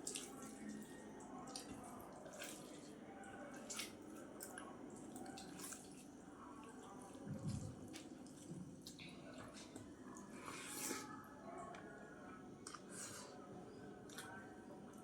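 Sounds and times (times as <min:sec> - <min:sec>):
wet eating sounds: 0:03.5 - 0:11.0, 0:12.6 - 0:13.4, 0:14.0 - 0:15.0.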